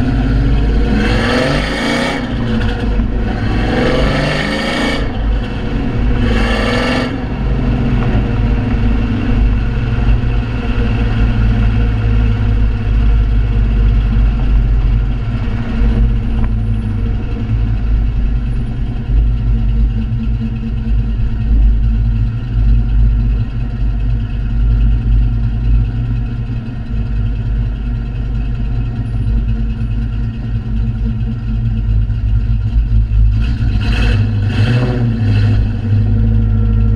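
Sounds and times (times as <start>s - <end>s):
engine revving: 0.0s - 17.8s, 33.3s - 36.9s
car engine idling unevenly: 0.0s - 36.9s.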